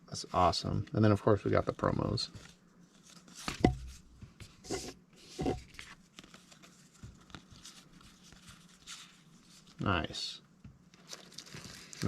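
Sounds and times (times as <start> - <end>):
trading cards rustling: 5.4 - 9.9.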